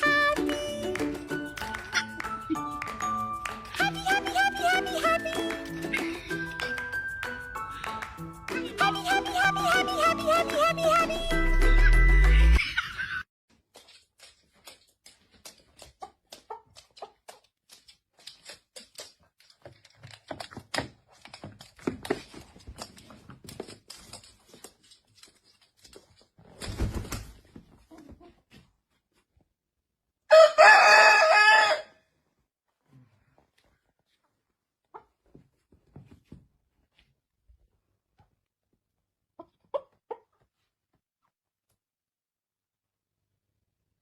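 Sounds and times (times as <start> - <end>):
rooster crowing: 30.3 - 32.0.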